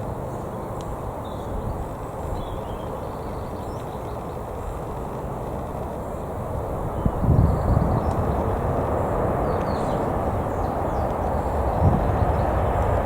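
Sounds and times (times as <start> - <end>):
jet engines rumbling: 4.4 - 13.0.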